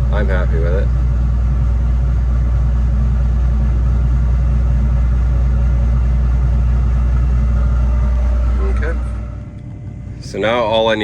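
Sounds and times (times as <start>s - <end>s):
combine harvester engine droning: 0.0s - 11.0s.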